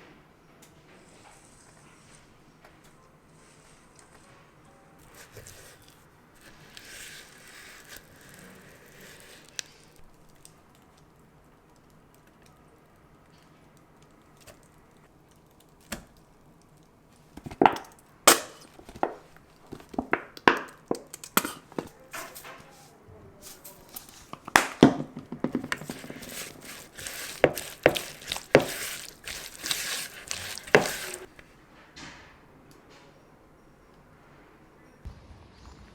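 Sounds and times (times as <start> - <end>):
rustling: 3.4 - 12.6, 13.2 - 31.6
utensils knocking on hard surface: 17.4 - 22.5, 24.3 - 31.3.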